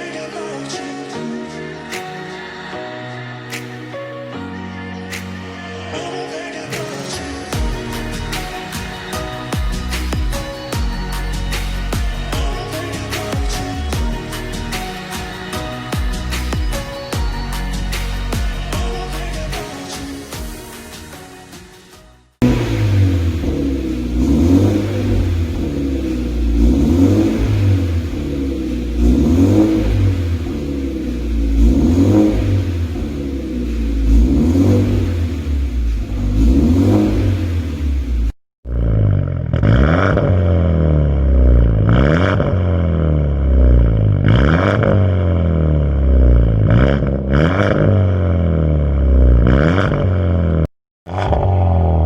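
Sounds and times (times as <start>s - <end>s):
car engine revving: 22.4s - 52.0s.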